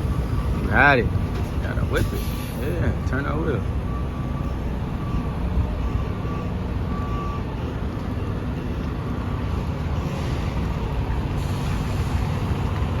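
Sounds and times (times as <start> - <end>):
diesel truck engine running: 0.0 - 13.0
faint high beep: 2.0 - 10.9.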